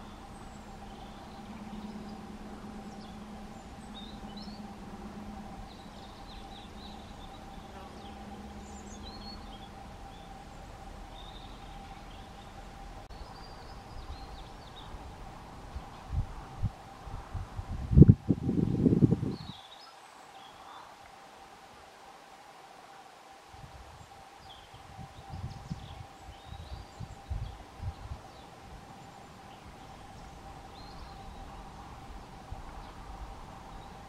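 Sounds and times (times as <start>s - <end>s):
small birds chirping: 0.0s - 16.2s, 24.0s - 34.0s
steady background hum: 0.0s - 19.4s, 24.8s - 34.0s.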